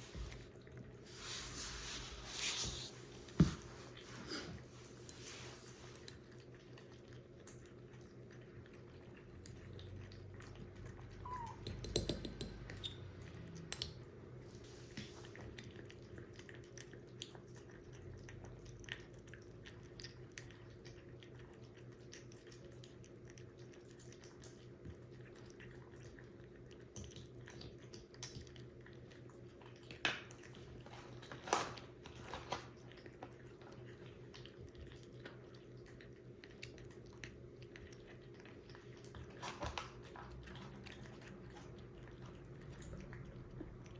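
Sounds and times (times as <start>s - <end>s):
kitten crunching kibble: 0.0s - 11.9s, 12.5s - 43.9s
taps against dish: 11.6s - 12.6s.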